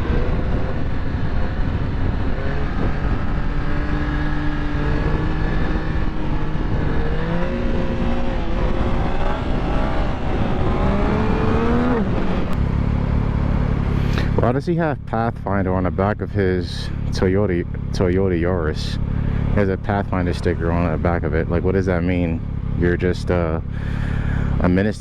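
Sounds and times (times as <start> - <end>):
wind rush: 0.0 - 12.6
motorcycle engine running: 0.0 - 25.0.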